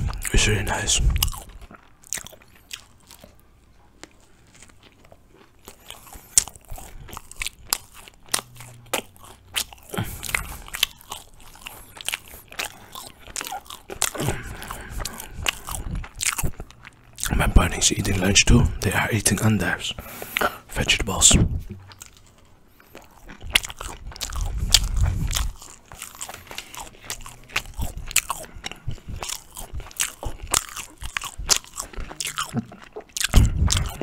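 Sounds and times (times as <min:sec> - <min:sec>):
crusty bread crunching: 0:00.0 - 0:34.0
wet mouth clicks: 0:23.3 - 0:34.0.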